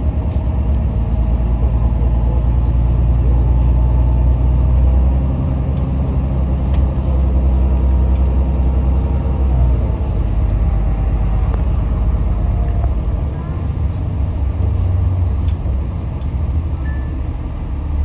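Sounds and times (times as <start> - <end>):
bus diesel engine running: 0.0 - 18.0.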